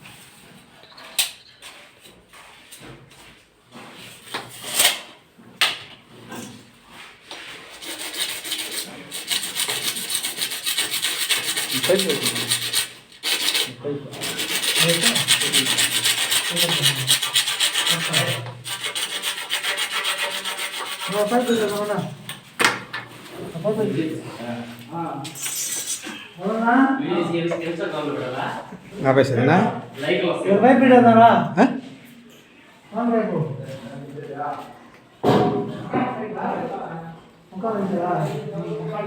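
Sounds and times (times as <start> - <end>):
rapid rubbing or scraping strokes: 7.0 - 22.2.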